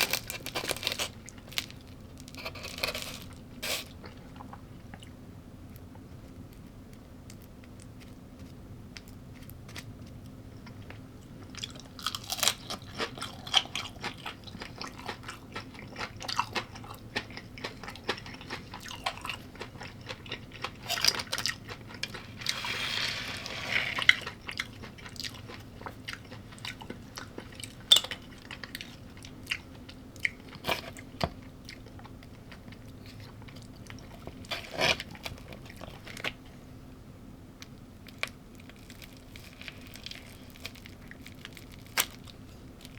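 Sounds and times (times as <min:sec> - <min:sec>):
crunchy bites and chewing: 0:00.0 - 0:05.1, 0:07.3 - 0:36.4.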